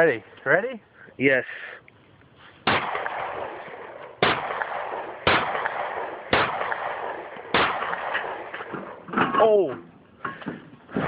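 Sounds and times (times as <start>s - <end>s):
pistol shots with echo: 2.6s - 9.0s.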